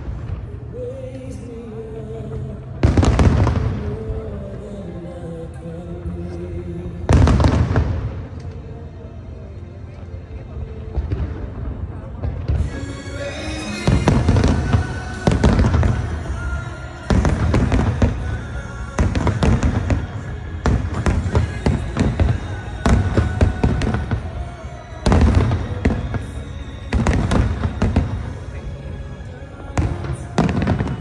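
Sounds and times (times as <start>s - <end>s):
fireworks booming: 2.8s - 4.2s, 7.1s - 8.4s, 10.9s - 28.6s, 29.8s - 31.0s
fireworks crackling: 2.8s - 4.3s, 7.1s - 8.7s, 10.9s - 31.0s.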